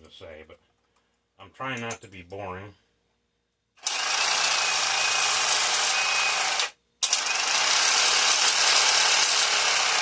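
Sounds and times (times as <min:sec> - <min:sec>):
power tool working metal: 0:03.8 - 0:10.0.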